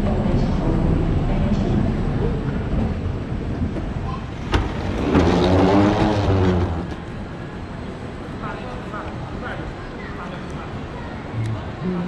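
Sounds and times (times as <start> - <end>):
vehicle engine passing: 4.4 - 7.3.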